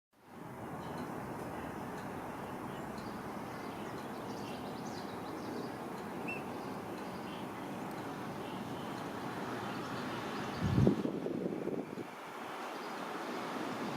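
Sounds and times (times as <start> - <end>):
faint bird chirps: 2.5 - 7.7.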